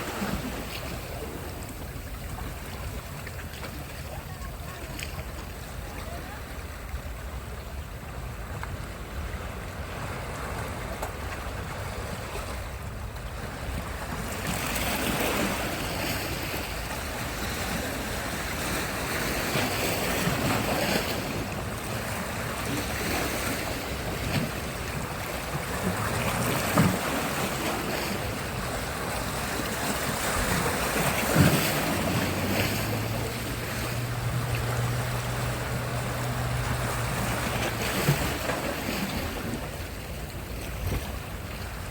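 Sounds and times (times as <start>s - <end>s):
waves breaking on a beach: 0.0s - 41.9s.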